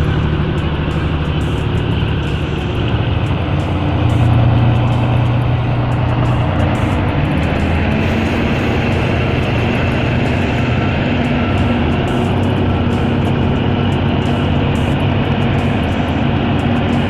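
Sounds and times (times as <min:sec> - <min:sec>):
heavy vehicle engines running: 0:00.0 - 0:17.0.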